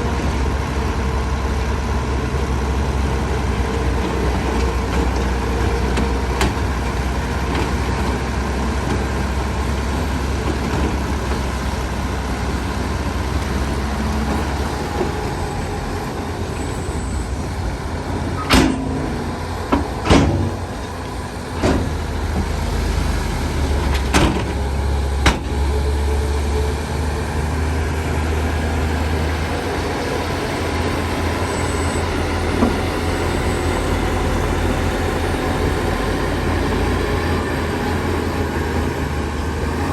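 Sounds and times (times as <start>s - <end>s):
heavy diesel machinery drone: 0.0s - 39.9s
sharp metallic clanks: 18.4s - 20.7s.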